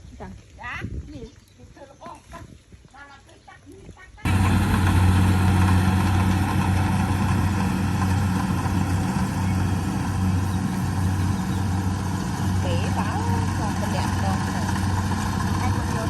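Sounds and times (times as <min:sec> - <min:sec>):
engine running steadily: 0:04.3 - 0:16.0.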